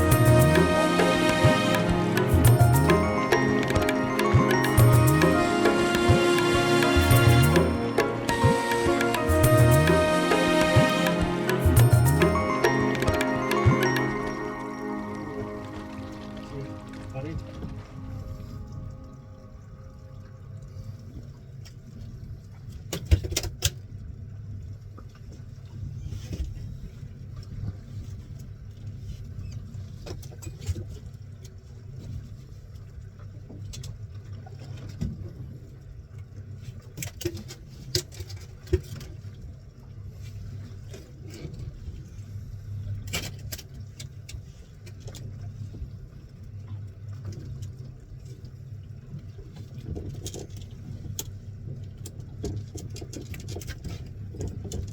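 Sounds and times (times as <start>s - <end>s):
boat engine humming: 0.0s - 21.3s.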